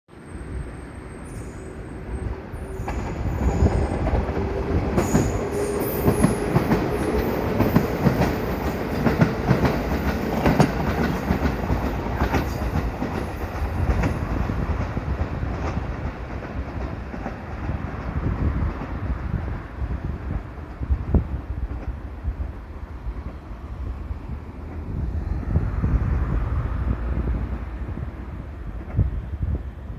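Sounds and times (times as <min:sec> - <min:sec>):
high wheel squeal: 0:00.2 - 0:04.0
train wheels clickety-clack: 0:02.6 - 0:22.5, 0:24.6 - 0:29.7.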